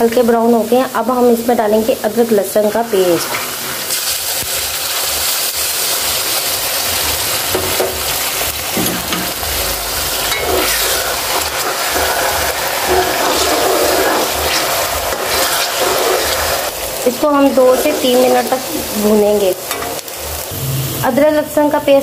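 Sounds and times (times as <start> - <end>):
onions sizzling in hot oil: 0.0 - 22.0
spoon stirring in metal pan: 10.3 - 18.7.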